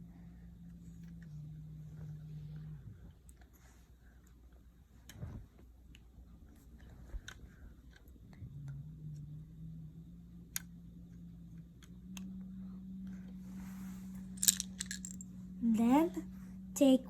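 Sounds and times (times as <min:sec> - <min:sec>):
steady low hum: 0:00.0 - 0:17.0
plastic bricks clicking together: 0:14.4 - 0:15.2.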